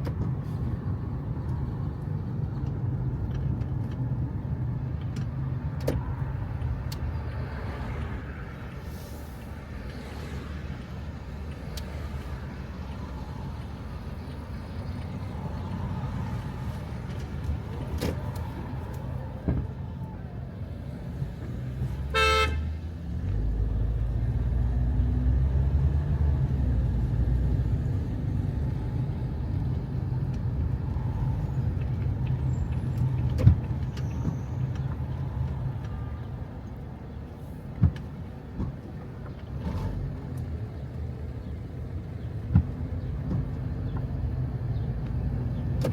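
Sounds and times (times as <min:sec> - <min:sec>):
car engine rumble: 0:00.0 - 0:45.9
car horn honk: 0:22.1 - 0:22.7.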